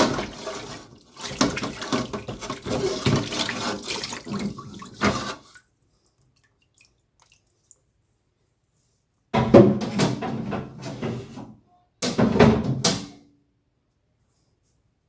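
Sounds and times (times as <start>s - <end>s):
water sloshing and splashing: 0.0s - 7.9s.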